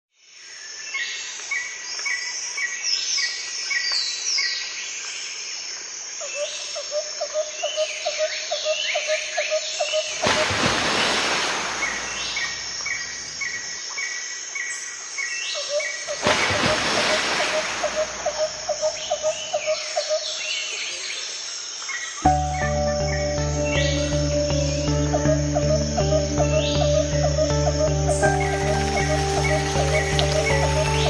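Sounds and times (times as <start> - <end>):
birds chirping and whistling: 22.3 - 31.0.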